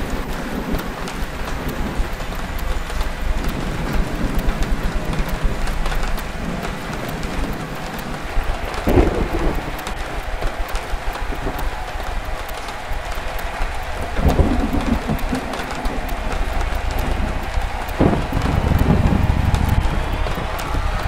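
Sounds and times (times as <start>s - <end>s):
raindrop clicks: 0.0s - 21.0s
steady rain: 0.0s - 21.0s
low rumble: 16.0s - 21.0s.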